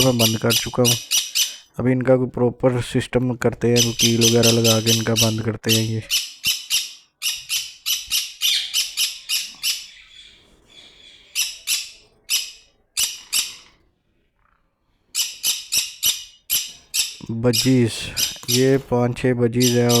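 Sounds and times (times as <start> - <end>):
parrots squawking: 0.0 - 1.7, 3.7 - 13.7, 15.1 - 18.8, 19.6 - 20.0.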